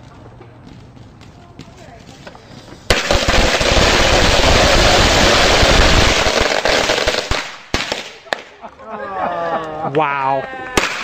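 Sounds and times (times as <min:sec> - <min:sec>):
firecrackers banging: 0:01.6 - 0:08.7, 0:10.8 - 0:11.0.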